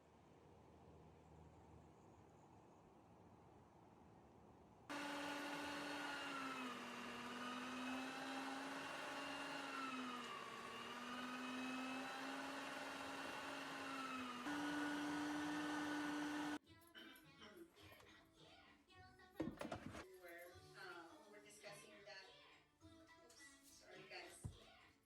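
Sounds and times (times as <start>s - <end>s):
small electric motor humming: 4.9s - 16.6s.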